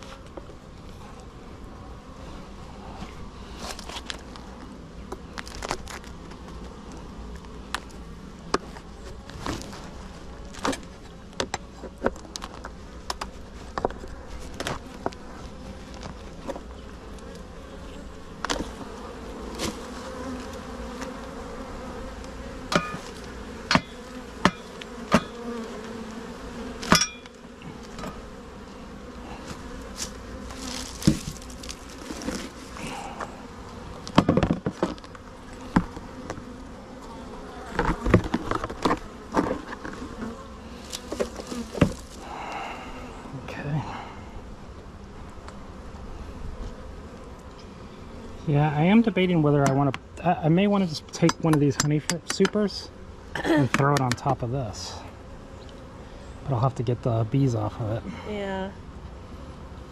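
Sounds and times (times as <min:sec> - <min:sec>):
bees buzzing: 0:00.0 - 0:59.9
clicks and knocks from hive: 0:03.0 - 0:17.5, 0:18.4 - 0:28.5, 0:29.1 - 0:42.6, 0:51.1 - 0:52.7, 0:53.6 - 0:54.4.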